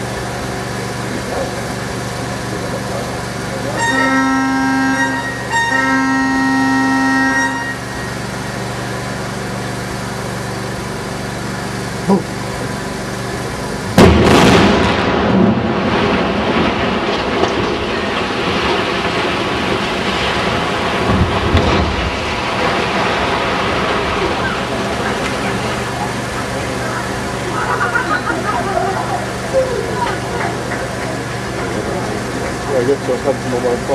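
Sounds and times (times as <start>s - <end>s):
warning horn blast: 3.6s - 9.0s
explosion bang: 13.9s - 24.8s
chimney collapsing rumble: 13.9s - 33.4s.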